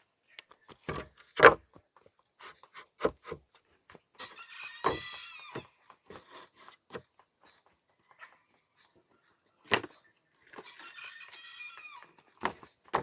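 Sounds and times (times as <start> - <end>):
timbers knocking and thudding: 0.7 - 1.8, 12.4 - 13.0
rooster crowing: 4.2 - 5.6, 10.6 - 12.2.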